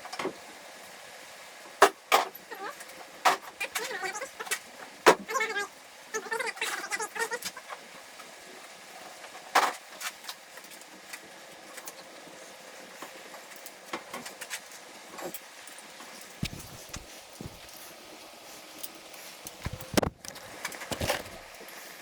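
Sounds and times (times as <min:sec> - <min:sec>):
steady hiss: 0:16.0 - 0:20.6.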